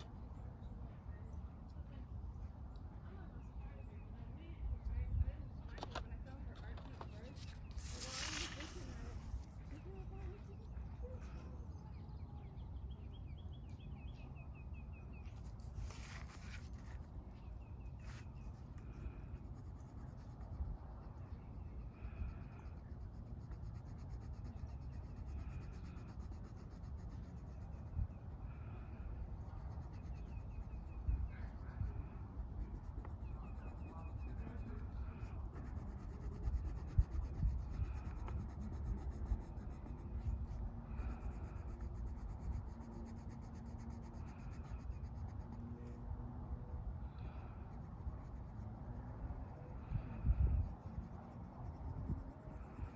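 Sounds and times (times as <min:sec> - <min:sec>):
low outdoor rumble: 0:00.0 - 0:52.9
coloring strokes scratching paper: 0:06.6 - 0:10.6, 0:15.4 - 0:46.1, 0:47.2 - 0:52.9.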